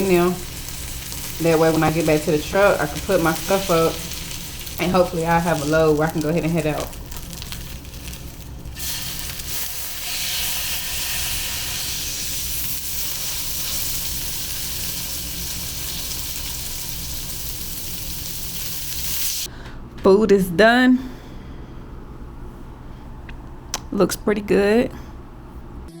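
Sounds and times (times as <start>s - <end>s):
salmon sizzling in a pan: 0.0s - 19.5s
steady low hum: 0.0s - 26.0s.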